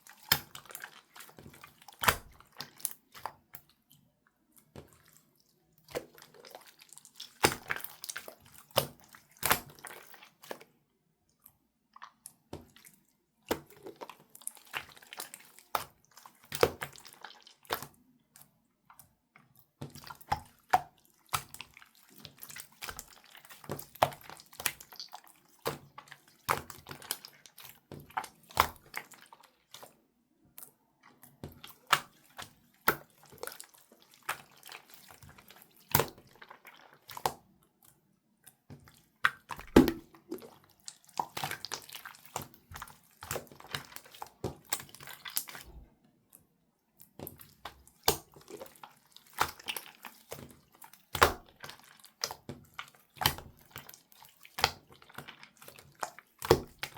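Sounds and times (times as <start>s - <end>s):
slime popping and squishing: 1.9s - 3.0s, 39.3s - 45.8s.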